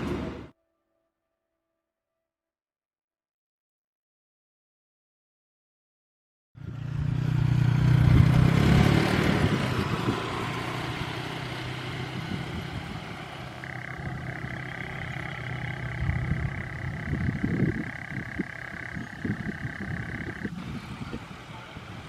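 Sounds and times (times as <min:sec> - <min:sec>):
engine running: 0:00.0 - 0:00.5, 0:06.6 - 0:22.0.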